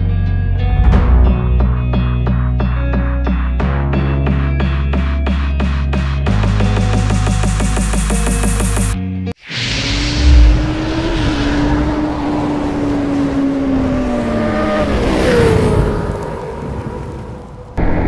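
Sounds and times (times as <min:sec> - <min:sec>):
loud low thump: 0:00.7 - 0:02.2.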